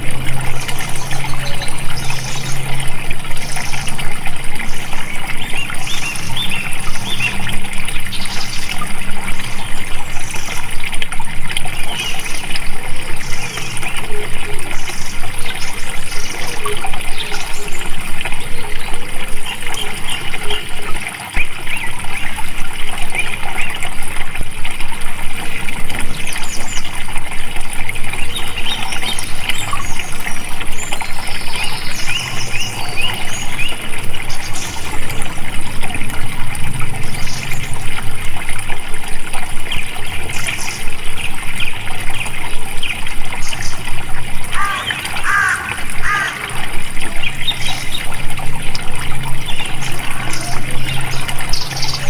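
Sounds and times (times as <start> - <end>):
high bird calls: 0.0 - 10.6, 44.5 - 48.2
stream water trickling: 0.0 - 52.0.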